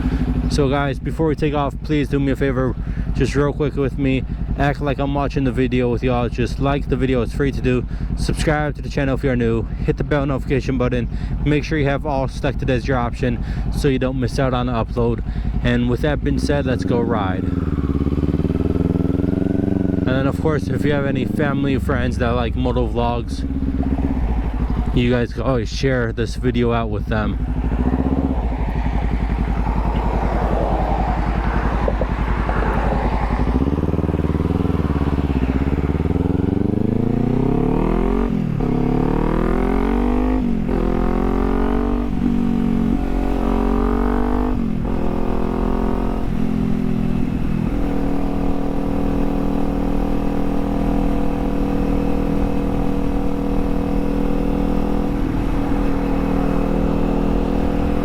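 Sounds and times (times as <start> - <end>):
motorcycle engine pulling away: 14.9 - 25.0, 27.0 - 58.0.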